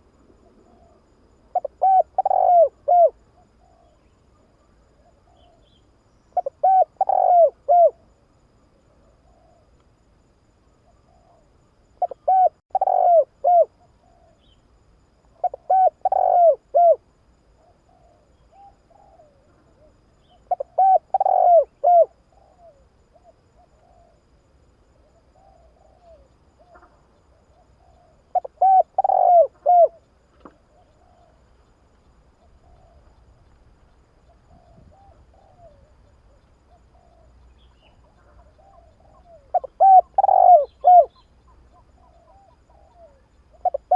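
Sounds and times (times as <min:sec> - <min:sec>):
dove cooing: 0:00.4 - 0:05.8, 0:06.4 - 0:08.1, 0:08.9 - 0:09.7, 0:10.9 - 0:14.5, 0:15.4 - 0:17.0, 0:17.6 - 0:24.2, 0:25.0 - 0:31.5, 0:34.2 - 0:43.9
faint short bird calls: 0:34.3 - 0:43.9.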